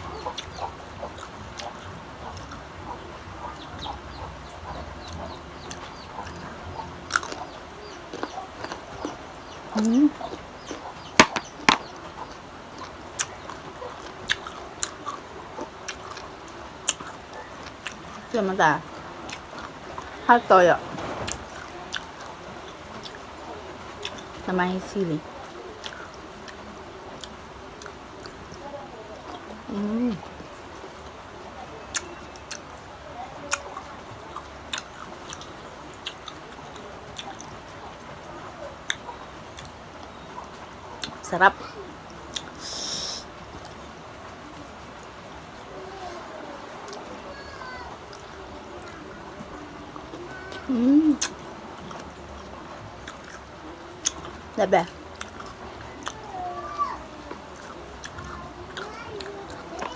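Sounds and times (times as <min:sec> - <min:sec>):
chewing crunchy mango: 0:00.0 - 0:23.3, 0:24.0 - 0:30.4, 0:31.8 - 0:38.1, 0:38.8 - 0:41.3, 0:49.9 - 0:56.4, 0:57.2 - 0:59.9
mango being bitten and chewed: 0:33.5 - 0:37.7, 0:55.2 - 0:56.4.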